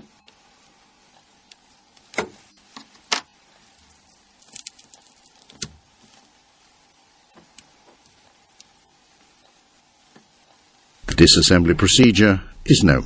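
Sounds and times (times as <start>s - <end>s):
small parts clicking and tapping: 2.8s - 6.2s.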